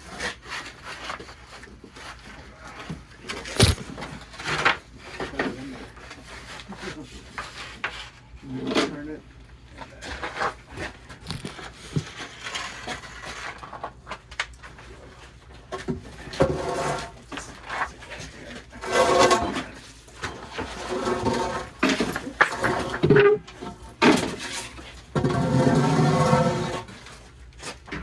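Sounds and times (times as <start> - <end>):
heavy object scraping and thudding: 3.6 - 3.9.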